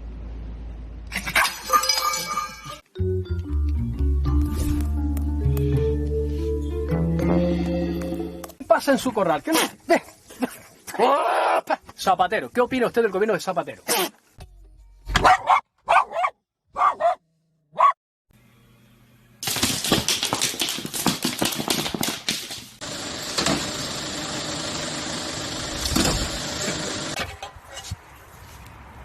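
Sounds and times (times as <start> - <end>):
dog barking: 15.2 - 18.0.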